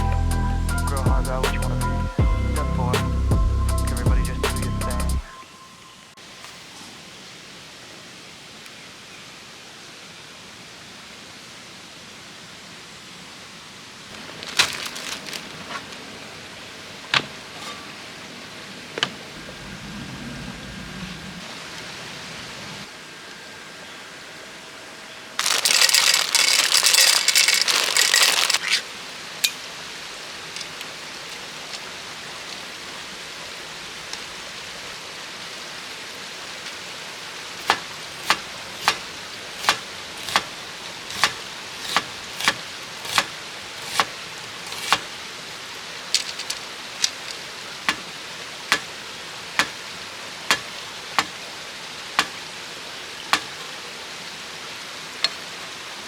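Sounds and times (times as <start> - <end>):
stream rushing: 14.0 - 23.2, 25.4 - 56.0
loud hissing burst: 19.2 - 22.6.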